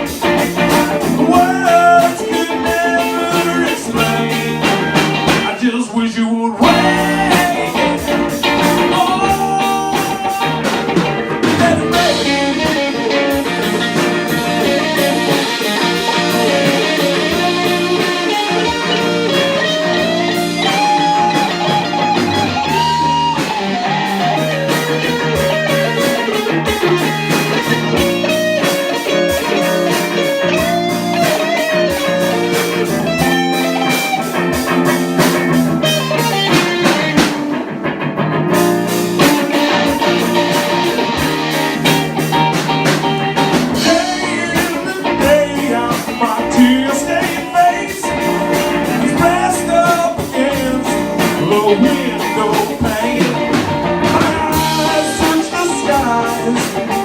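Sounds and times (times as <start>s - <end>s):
drum kit: 0.0s - 5.8s, 6.6s - 57.0s
electric guitar bending lead melody: 0.0s - 5.8s, 6.6s - 57.0s
bass: 0.0s - 57.0s.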